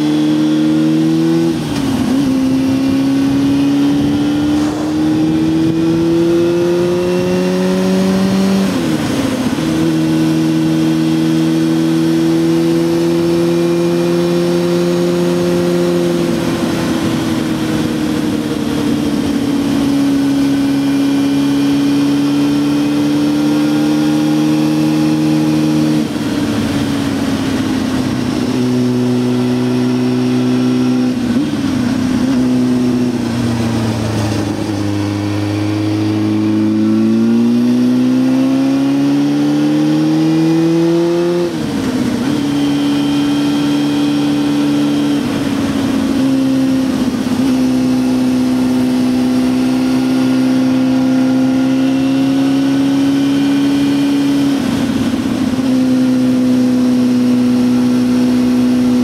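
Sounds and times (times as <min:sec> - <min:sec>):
motorcycle engine: 0:00.0 - 0:59.0
wind rushing: 0:02.0 - 0:09.5.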